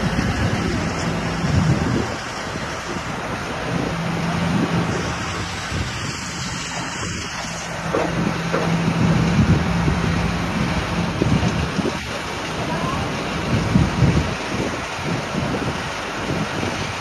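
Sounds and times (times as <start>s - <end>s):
rock crusher droning: 3.4s - 12.0s.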